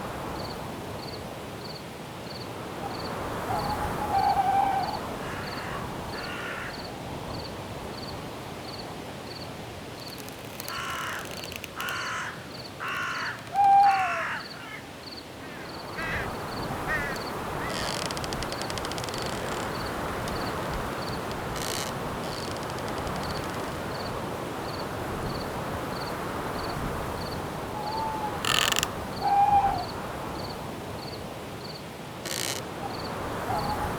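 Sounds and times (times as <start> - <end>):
crickets chirping: 0.0 - 33.9
wind hiss: 0.0 - 33.9
owl-like hoot: 3.4 - 5.1, 13.2 - 14.4, 27.8 - 30.0, 32.9 - 33.9
harsh cawing bird calls: 3.5 - 6.9, 10.1 - 23.5, 27.8 - 29.9, 32.2 - 33.8.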